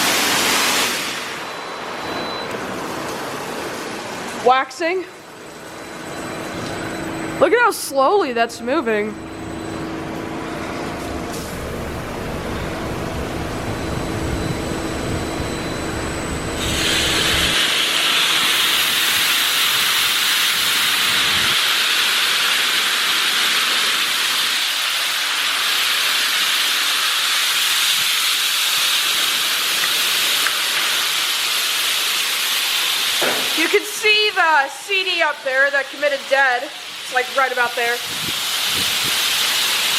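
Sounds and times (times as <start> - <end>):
hiss of water spray: 0.0 - 1.4, 16.6 - 34.2, 36.8 - 39.9
low machine hum: 1.5 - 21.6.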